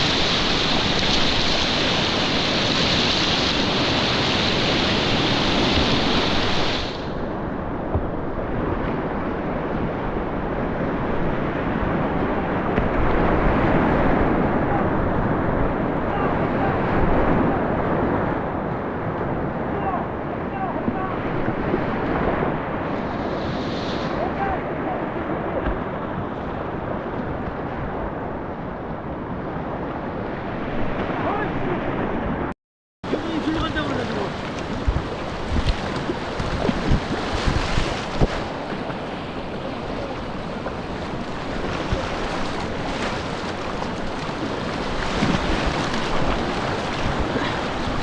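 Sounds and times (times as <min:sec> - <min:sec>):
river whitewater rushing: 0:00.0 - 0:07.2, 0:33.1 - 0:48.0
wind buffeting microphone: 0:33.1 - 0:48.0.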